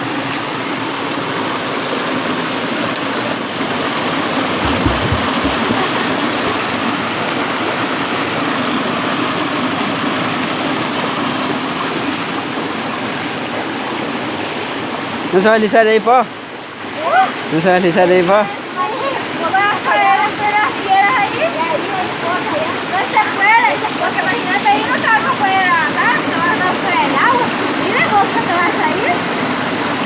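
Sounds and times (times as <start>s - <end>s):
river water rushing over rocks: 0.0s - 15.3s, 18.6s - 30.0s
low bump of wind or handling: 4.4s - 7.0s.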